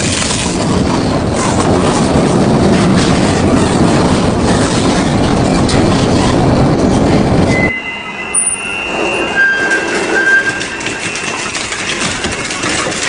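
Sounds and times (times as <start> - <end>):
metal scraping and squealing: 5.9 - 13.0.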